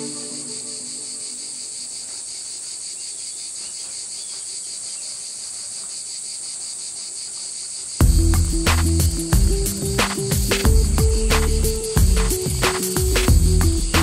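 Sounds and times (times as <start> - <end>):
crickets chirring: 0.0 - 14.0
music with heavy bass: 8.0 - 14.0.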